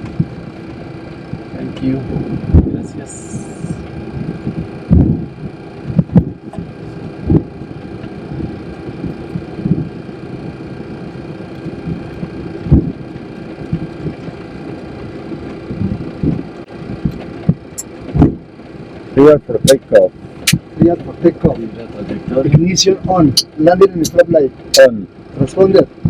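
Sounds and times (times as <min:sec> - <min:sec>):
jet engines humming: 0:00.0 - 0:26.0
low thumps: 0:02.1 - 0:02.8, 0:03.6 - 0:10.0, 0:11.6 - 0:14.4, 0:15.4 - 0:18.5.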